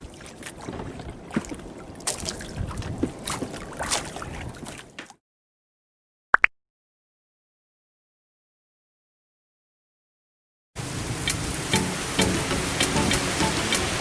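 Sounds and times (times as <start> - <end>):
wind gusts: 0.0 - 4.9, 10.8 - 14.0
water splashing and sloshing: 0.0 - 5.2, 10.8 - 14.0.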